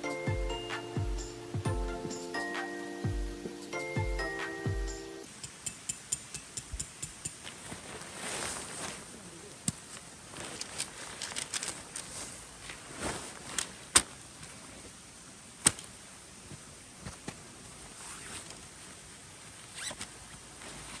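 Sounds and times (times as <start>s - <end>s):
steady hiss: 0.0s - 7.5s.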